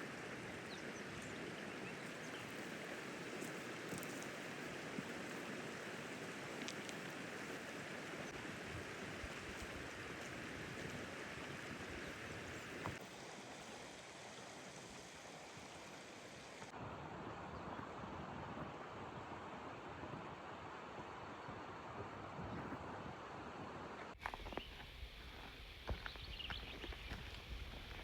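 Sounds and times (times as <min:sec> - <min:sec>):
running water rushing: 0:00.0 - 0:16.8.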